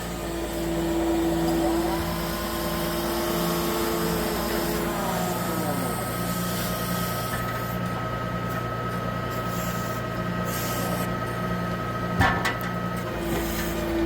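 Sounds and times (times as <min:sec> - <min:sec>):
high hydraulic whine: 0:00.0 - 0:08.0, 0:09.3 - 0:11.3
truck engine running steadily: 0:00.0 - 0:14.0
sharp metal clunk with ringing: 0:12.2 - 0:12.8.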